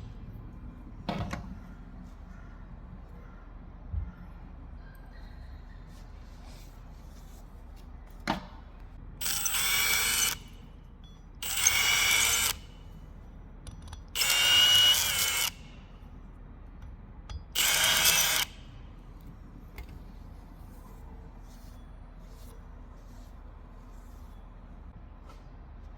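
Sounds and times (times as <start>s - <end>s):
power drill on steel: 9.2s - 10.4s, 11.4s - 12.7s, 14.2s - 15.7s, 17.6s - 18.6s.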